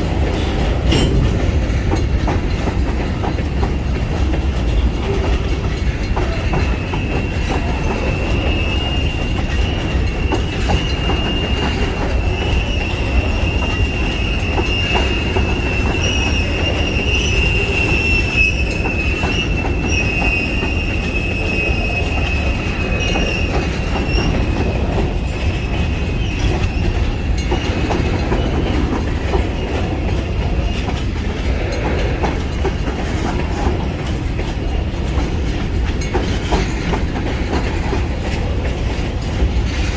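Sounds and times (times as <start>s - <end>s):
freight train cars rumbling: 0.0s - 39.9s
high wheel squeal: 6.2s - 32.6s.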